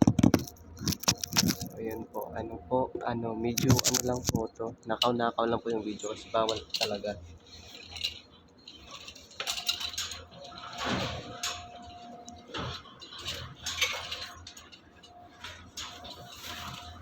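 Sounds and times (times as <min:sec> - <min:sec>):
low steady hum: 0:00.0 - 0:17.0
metallic clinks and knocks: 0:05.8 - 0:17.0.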